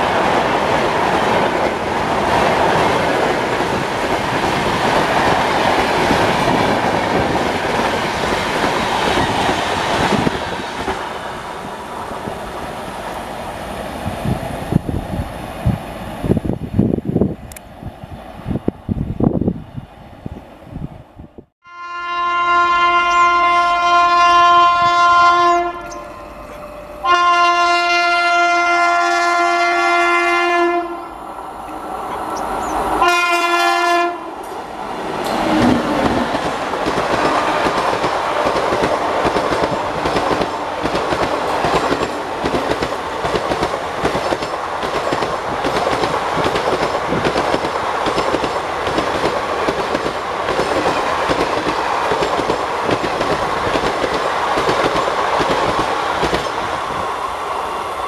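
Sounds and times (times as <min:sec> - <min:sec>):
train passing with steady rush: 0:00.0 - 0:58.0
locomotive horn blasts: 0:21.6 - 0:31.2, 0:33.0 - 0:34.3, 0:37.2 - 0:38.5
wheels clicking over rail joints: 0:34.4 - 0:56.7.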